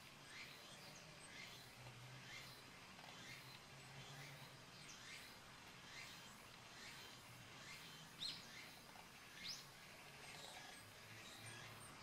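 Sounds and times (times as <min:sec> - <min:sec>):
small bird chirps: 0:00.2 - 0:09.7.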